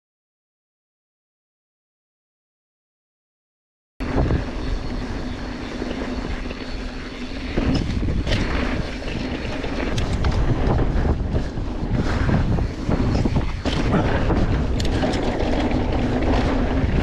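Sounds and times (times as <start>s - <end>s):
bike clicks and rattles: 4.0s - 17.0s
bike tyres rumbling on dirt: 4.0s - 17.0s
wind on microphone: 4.0s - 17.0s.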